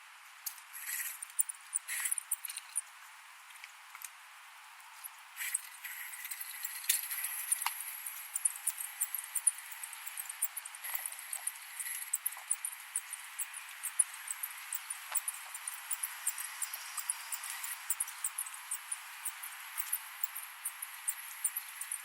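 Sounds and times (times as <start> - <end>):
small clicks and rattles: 5.4 - 22.0.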